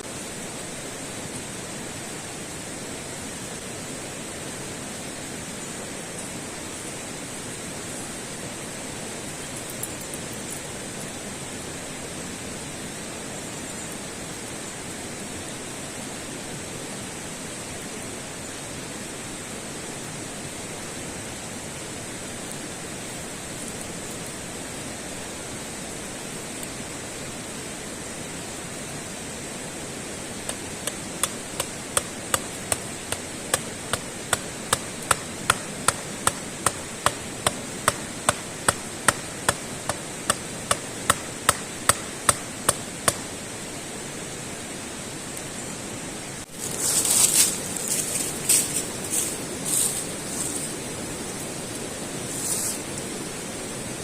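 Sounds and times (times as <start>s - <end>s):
tool striking knocks: 30.5s - 43.2s
rustling and scraping: 46.5s - 50.8s, 52.2s - 52.9s.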